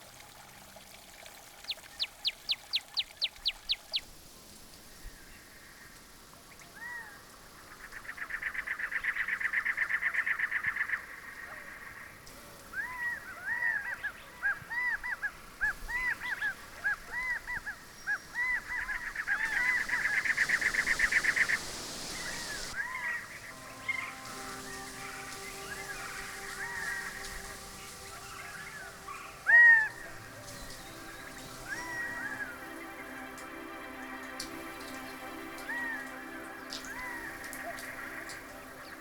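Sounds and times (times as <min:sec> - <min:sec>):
bird squawk-like calls: 0:12.8 - 0:33.1.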